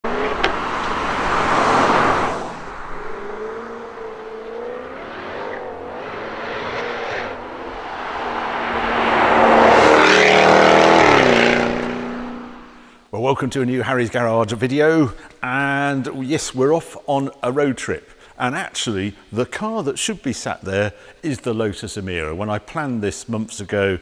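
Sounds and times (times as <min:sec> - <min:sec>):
sports car engine revving: 0:00.0 - 0:12.8.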